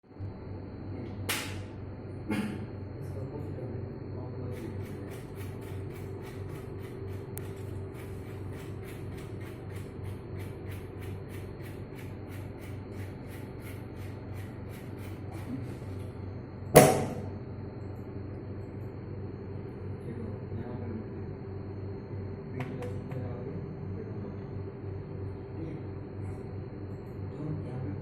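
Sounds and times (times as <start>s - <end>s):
steady mechanical hum: 0.0s - 28.0s
loud knock: 16.8s - 17.3s.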